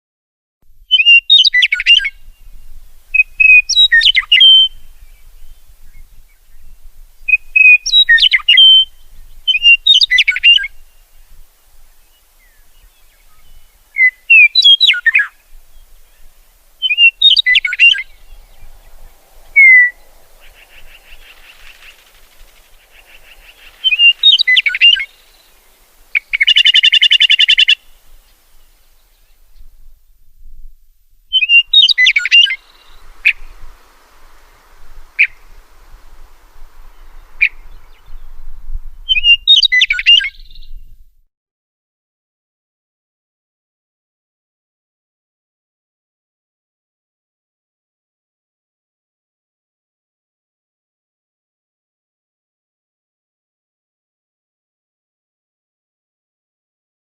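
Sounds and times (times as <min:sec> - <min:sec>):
bird singing whistled phrases: 0:00.9 - 0:02.5, 0:03.1 - 0:06.7, 0:07.3 - 0:10.8, 0:12.4 - 0:15.8, 0:16.8 - 0:22.1, 0:22.9 - 0:25.5, 0:26.1 - 0:27.9, 0:31.3 - 0:33.6, 0:35.1 - 0:35.4, 0:36.9 - 0:38.4, 0:39.0 - 0:40.9.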